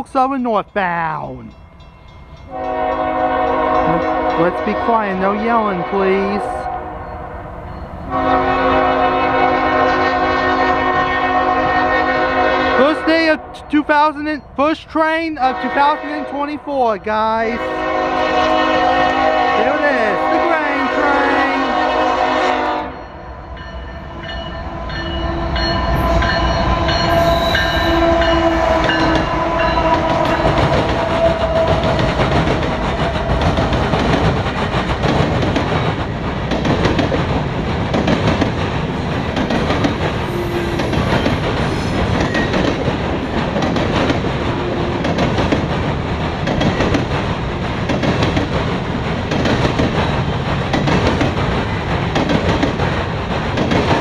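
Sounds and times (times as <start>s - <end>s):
freight train rumbling past: 0.0s - 54.0s
wheels clattering over rail joints: 28.8s - 54.0s.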